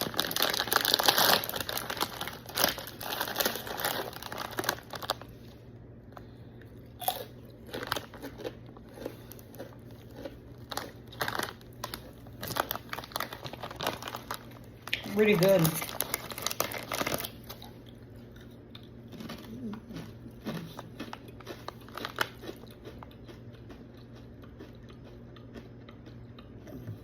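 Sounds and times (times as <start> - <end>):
chips crunching while chewed: 0.0 - 5.3, 6.8 - 26.9
chip bag crinkling: 0.0 - 5.6, 7.0 - 18.0, 19.1 - 23.2.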